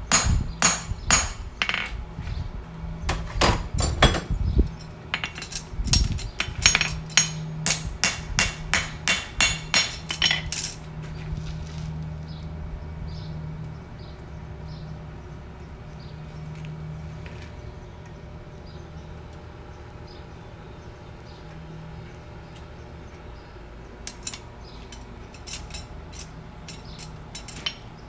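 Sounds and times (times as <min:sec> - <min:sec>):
hammer striking steel on anvil: 0:00.0 - 0:02.0, 0:03.1 - 0:04.4, 0:05.2 - 0:10.8, 0:24.1 - 0:27.9.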